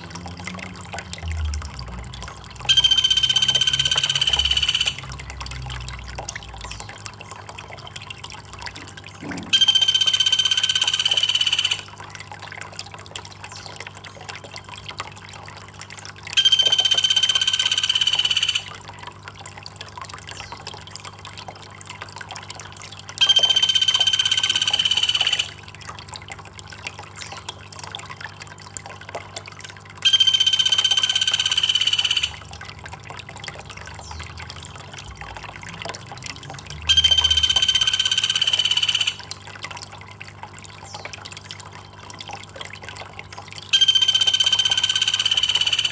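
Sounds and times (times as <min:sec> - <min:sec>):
trickle of running water: 0:00.0 - 0:45.9
high buzzing call: 0:02.7 - 0:05.2, 0:09.2 - 0:12.0, 0:16.4 - 0:18.8, 0:23.2 - 0:25.6, 0:30.0 - 0:32.6, 0:36.9 - 0:39.3, 0:43.7 - 0:45.9.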